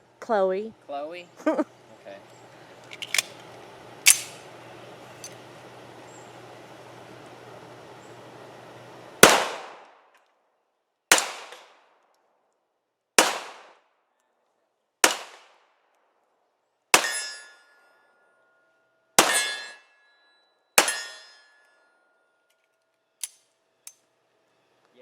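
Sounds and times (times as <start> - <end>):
gunshots: 9.2 - 9.8, 11.1 - 11.8, 13.2 - 13.8, 15.0 - 15.6
ringing metallic tone: 17.0 - 18.7, 19.3 - 22.3.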